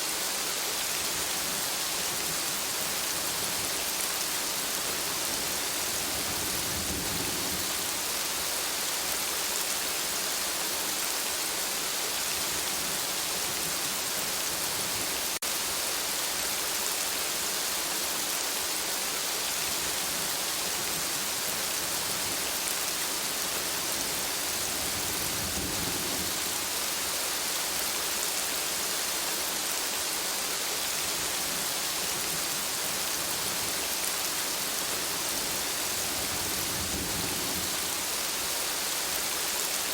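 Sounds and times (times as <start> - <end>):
steady rain hiss: 0.0 - 39.9
low thunder rumbles: 5.9 - 8.0, 24.1 - 26.6, 35.9 - 37.9.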